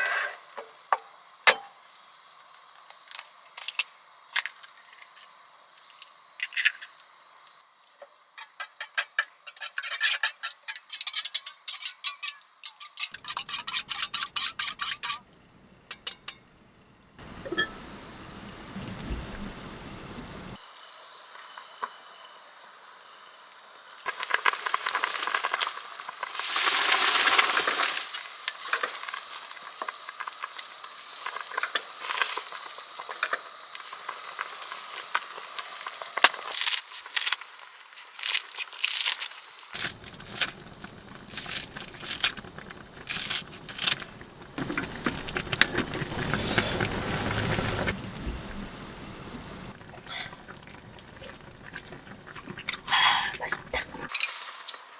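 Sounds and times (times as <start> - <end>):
steamy cooking hiss: 0.0 - 10.6, 16.5 - 38.6, 39.4 - 54.9
cookware clicking and rattling: 8.4 - 15.2.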